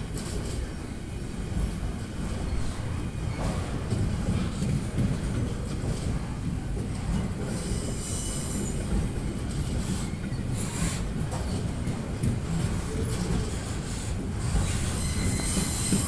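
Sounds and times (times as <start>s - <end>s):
rumble of train wheels: 0.0s - 16.0s
high wheel squeal: 14.6s - 16.0s.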